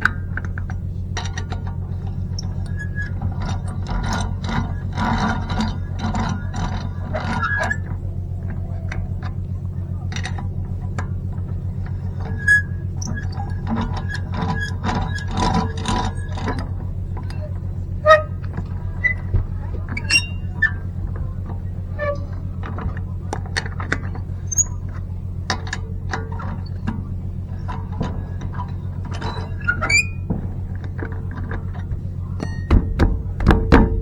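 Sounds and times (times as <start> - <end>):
steady low hum: 0.0 - 34.0
sharp clicks and clinks: 10.0 - 34.0
loud knock: 32.4 - 34.0.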